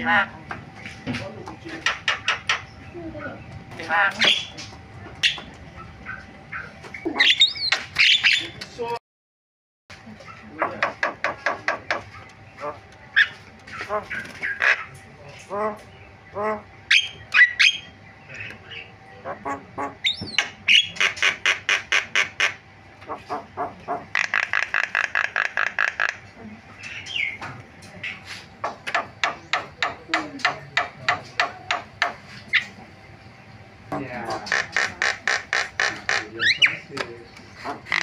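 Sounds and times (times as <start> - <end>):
harsh buzzy bird rattle: 1.6 - 2.8, 10.2 - 17.8, 20.1 - 27.2, 34.2 - 38.0
bird singing varied song: 1.6 - 8.7, 10.2 - 21.2, 26.7 - 28.3, 28.9 - 38.0.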